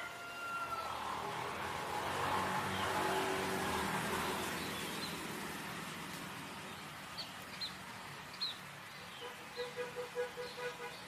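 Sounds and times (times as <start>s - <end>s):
road traffic hiss: 0.0s - 11.0s
small bird chirping: 4.3s - 5.3s, 6.6s - 11.0s.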